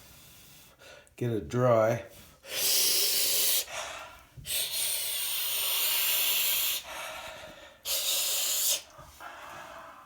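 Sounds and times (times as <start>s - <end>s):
hissing air blast: 7.9s - 8.9s.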